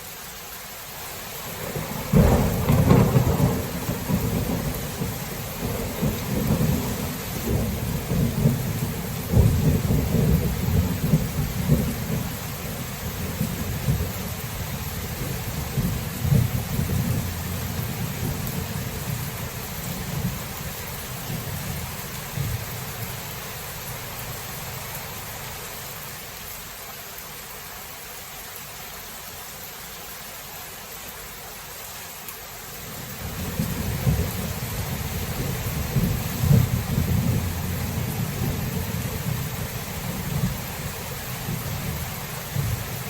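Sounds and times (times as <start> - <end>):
steady rain hiss: 0.0 - 43.0
rolling thunder: 1.5 - 22.6, 33.2 - 43.0
sharp thunder cracks: 1.7 - 8.6.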